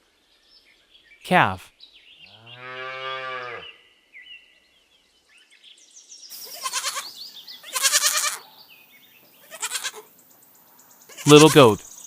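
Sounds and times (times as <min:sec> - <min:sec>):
young farm animal bleating: 0:06.4 - 0:08.4, 0:09.4 - 0:10.1, 0:11.1 - 0:11.8.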